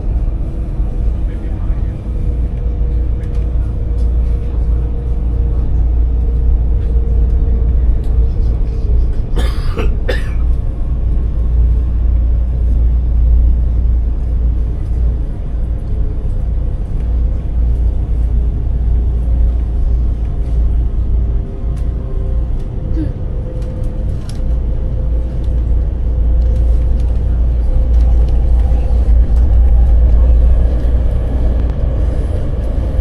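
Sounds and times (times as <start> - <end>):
train rumbling: 0.0 - 33.0
cough: 9.4 - 10.6.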